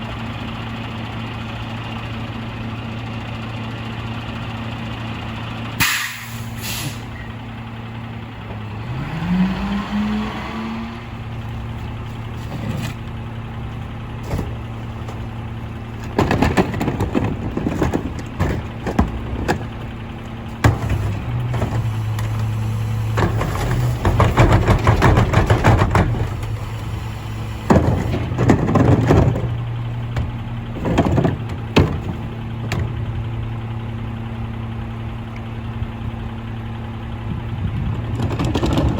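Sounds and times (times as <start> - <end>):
garbage truck diesel engine: 0.0 - 38.9
air brake hiss: 5.8 - 7.2
clattering and banging: 11.8 - 13.2, 14.1 - 26.9, 27.6 - 33.2, 38.0 - 38.9.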